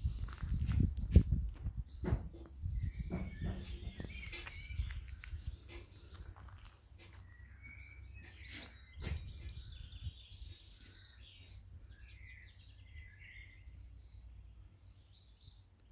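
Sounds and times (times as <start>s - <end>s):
birds chirping: 0.0s - 15.9s
sharp knocks: 2.0s - 4.6s.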